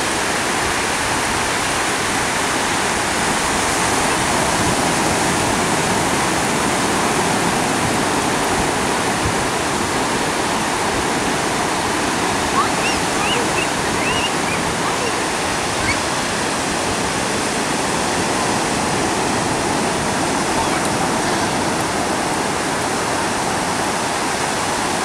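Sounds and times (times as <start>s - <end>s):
sea surf washing in: 0.0s - 25.0s
short high chirps: 12.6s - 16.1s.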